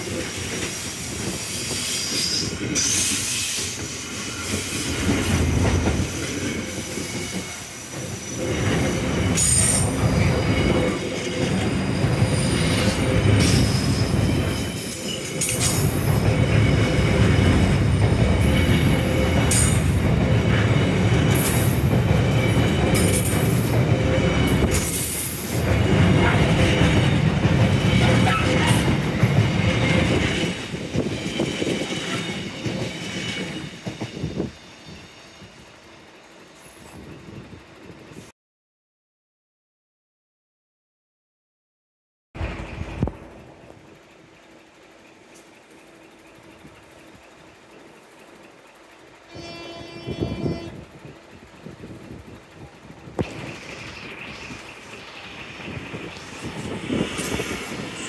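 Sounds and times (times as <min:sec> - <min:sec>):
freight train wheels rumbling: 0:00.0 - 0:38.3, 0:42.4 - 0:58.0.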